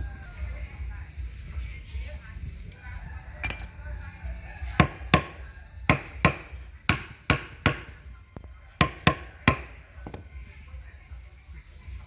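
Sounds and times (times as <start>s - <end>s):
hammer striking metal: 3.4s - 3.8s, 4.8s - 8.0s, 8.8s - 10.2s.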